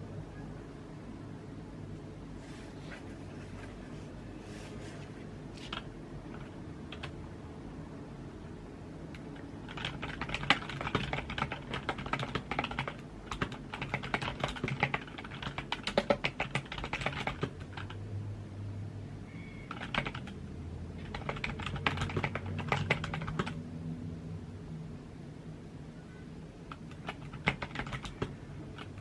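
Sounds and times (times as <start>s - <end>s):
typing on computer keyboard: 5.6s - 7.2s, 9.1s - 18.0s, 19.6s - 20.4s, 21.0s - 23.6s, 26.7s - 29.0s.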